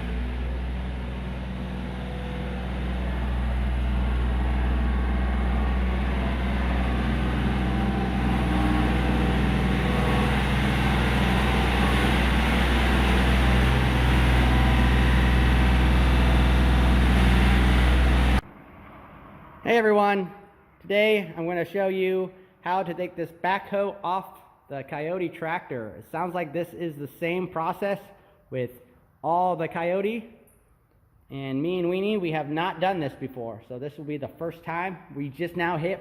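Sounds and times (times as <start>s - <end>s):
tractor diesel engine running: 0.0s - 18.4s.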